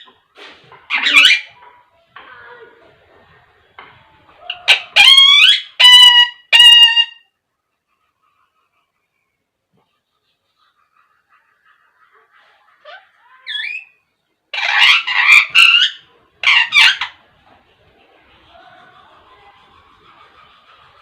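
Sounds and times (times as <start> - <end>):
parakeet calling and squawking: 0.9 - 1.6, 4.5 - 7.3, 12.8 - 17.2.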